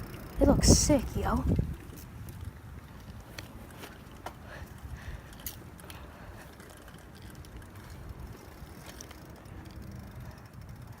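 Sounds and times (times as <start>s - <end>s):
wind on microphone: 0.0s - 3.7s
bicycle freewheel ticking: 0.0s - 11.0s
bicycle tyres rolling on pavement: 0.0s - 11.0s.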